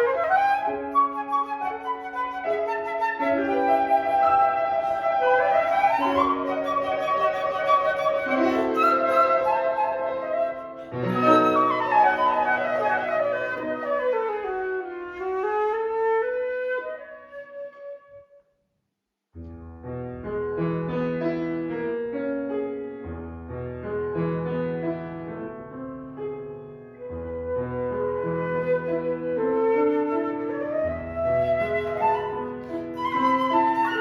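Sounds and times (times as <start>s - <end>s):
piano: 0.0s - 18.3s, 19.4s - 34.0s
flute: 0.0s - 18.4s, 27.0s - 34.0s.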